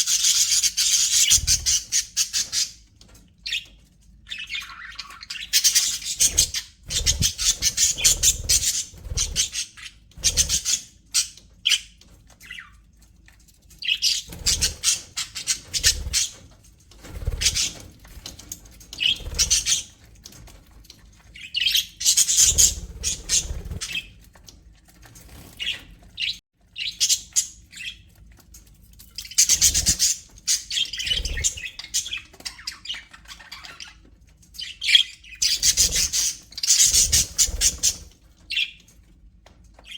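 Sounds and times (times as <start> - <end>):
budgerigars chattering and squawking: 0.0 - 12.8, 13.8 - 16.5, 17.1 - 20.0, 21.4 - 24.2, 29.2 - 38.8.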